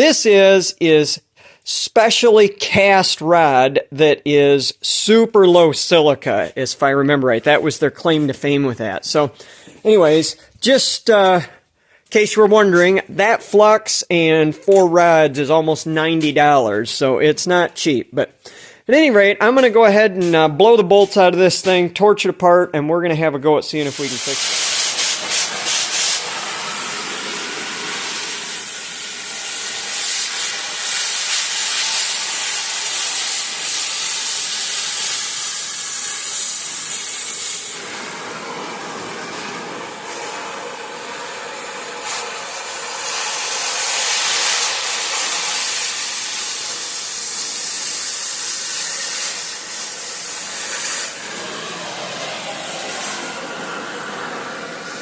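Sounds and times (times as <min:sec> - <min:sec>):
cutting torch hissing: 0:23.8 - 0:55.0.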